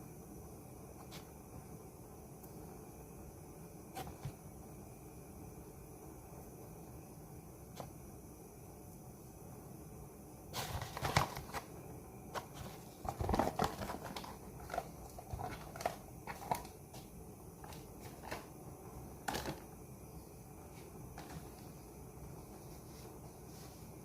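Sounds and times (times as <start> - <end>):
packaging crinkling: 10.6 - 11.7, 12.3 - 18.5.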